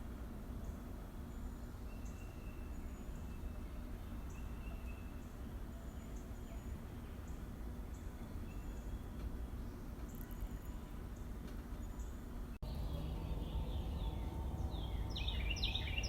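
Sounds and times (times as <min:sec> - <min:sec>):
low rumble: 0:12.6 - 0:16.0.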